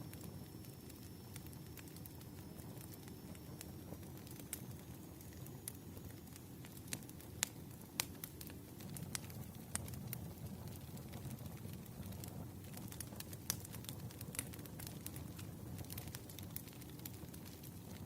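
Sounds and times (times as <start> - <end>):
wood fire crackling: 0.0 - 18.0
pops and snaps from burning logs: 0.1 - 18.0.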